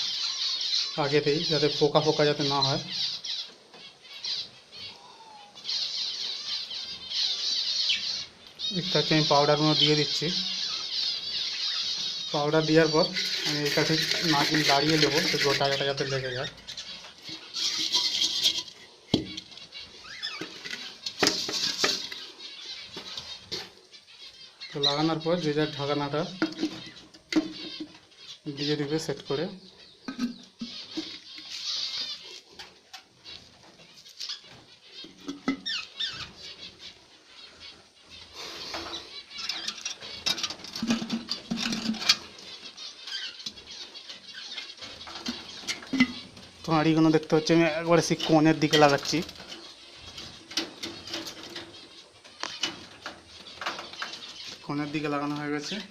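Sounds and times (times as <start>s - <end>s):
budgerigars chirping: 0.0s - 55.9s
clay pots clicking and knocking: 12.3s - 22.3s, 25.8s - 28.1s, 30.0s - 31.6s, 35.0s - 36.3s, 38.6s - 43.7s, 44.6s - 55.9s
powder rustling in a clay pot: 12.3s - 22.3s.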